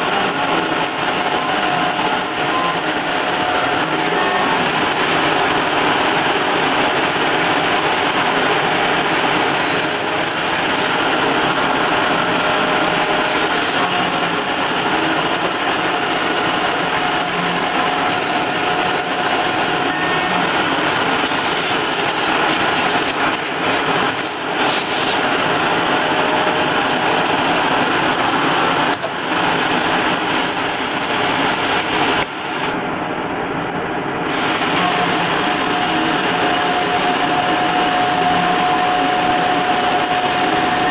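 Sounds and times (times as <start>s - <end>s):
router spindle cutting aluminium: 0.0s - 40.9s.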